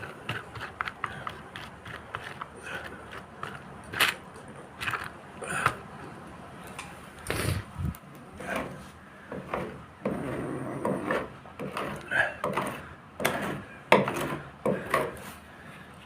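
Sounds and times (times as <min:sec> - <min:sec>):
knocks and scrapes from hand work: 0:08.4 - 0:15.4.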